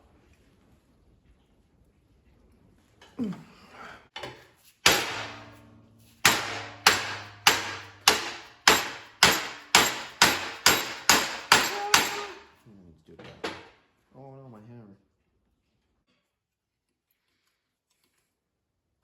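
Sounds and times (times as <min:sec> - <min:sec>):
hammer striking sheet metal: 0:04.8 - 0:12.5.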